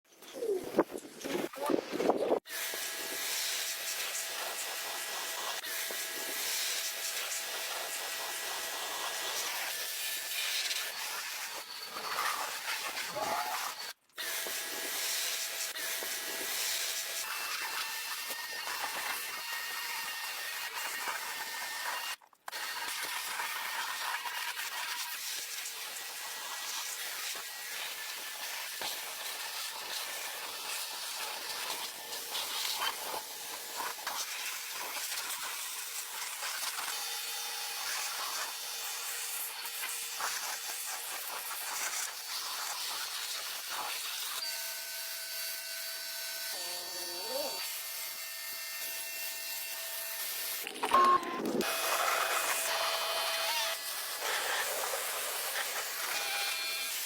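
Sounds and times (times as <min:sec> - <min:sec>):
high-pressure water spray hissing: 0:53.8 - 0:57.0.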